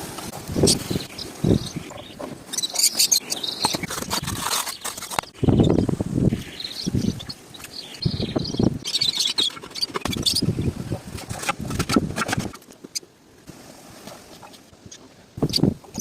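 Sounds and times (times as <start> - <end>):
birds chirping: 0.4 - 11.0, 14.4 - 16.0.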